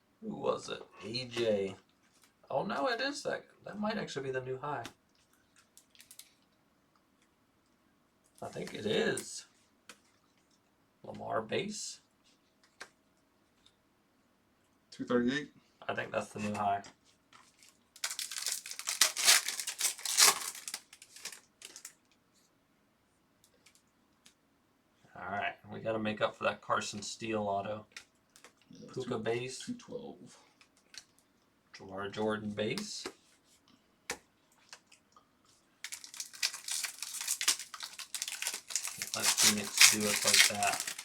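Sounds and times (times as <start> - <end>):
foil wrapper tearing and crinkling: 17.5 - 22.0, 35.8 - 41.0.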